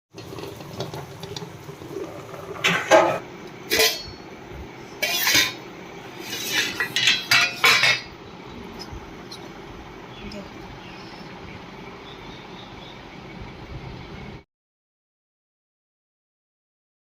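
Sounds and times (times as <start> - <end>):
utensils and dishes clinking: 2.6 - 4.2, 5.0 - 5.6, 6.2 - 8.2.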